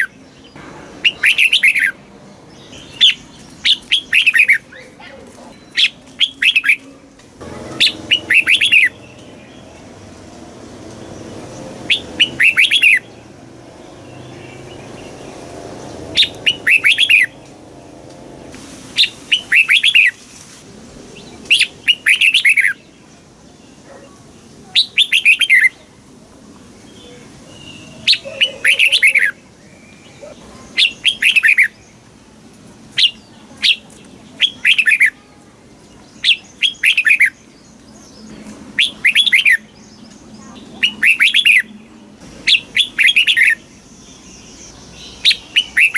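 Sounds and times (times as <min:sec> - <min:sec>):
bird singing falling notes: 0:00.0 - 0:04.9.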